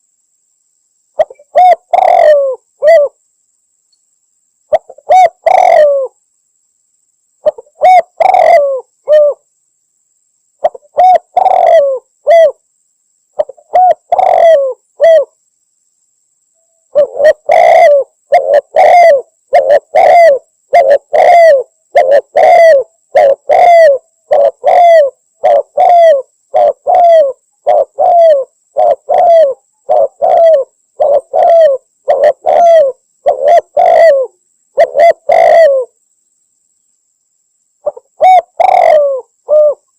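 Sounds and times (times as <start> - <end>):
dove cooing: 1.2 - 3.2, 4.7 - 6.2, 7.4 - 9.4, 10.6 - 12.6, 13.4 - 15.3, 16.9 - 36.0, 37.8 - 39.9.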